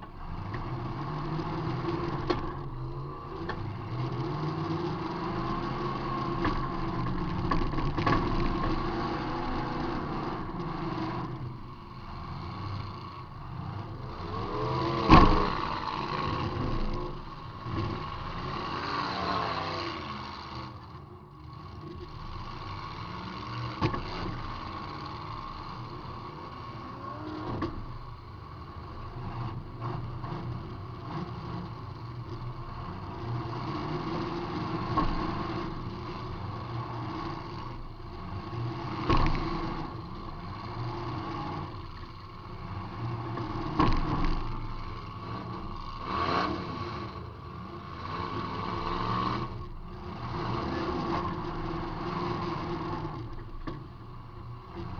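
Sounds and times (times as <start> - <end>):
car engine revving: 0.0 - 54.9.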